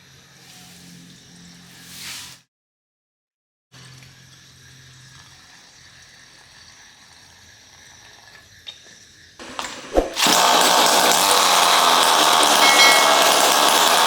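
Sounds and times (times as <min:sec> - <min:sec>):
small gasoline engine running: 0:09.4 - 0:14.0.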